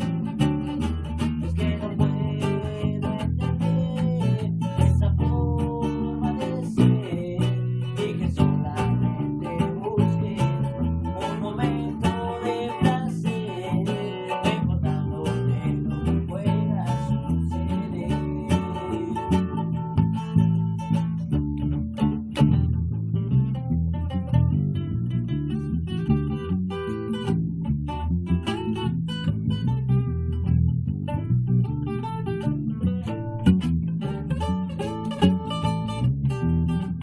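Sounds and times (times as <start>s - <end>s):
low bass line: 0.0s - 37.0s
strummed guitar: 0.0s - 37.0s.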